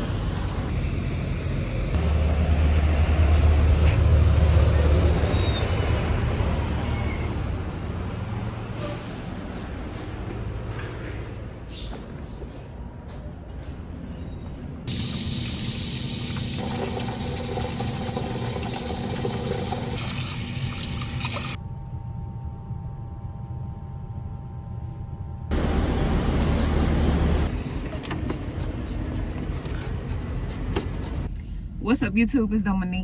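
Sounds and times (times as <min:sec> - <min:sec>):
vehicle and road noise: 0:00.0 - 0:14.9, 0:25.5 - 0:31.3.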